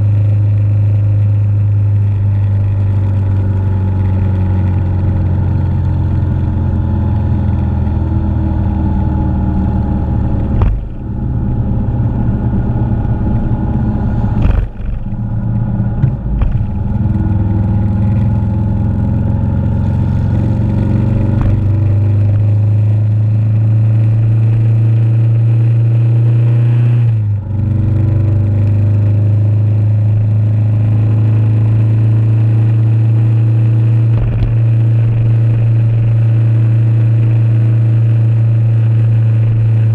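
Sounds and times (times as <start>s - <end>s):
clatter: 0.0s - 8.6s, 9.6s - 39.9s
motorcycle engine cruising: 0.0s - 39.9s.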